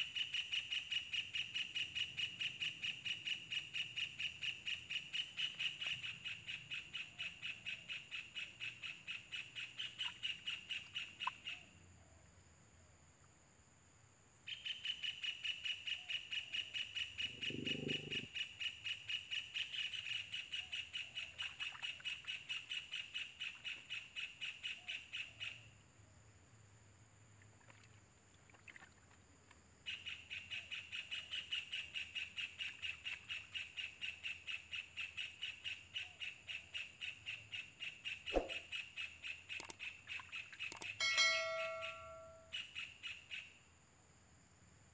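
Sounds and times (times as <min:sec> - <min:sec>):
sharp click: 0:38.3 - 0:38.6, 0:39.6 - 0:39.8, 0:40.7 - 0:41.0.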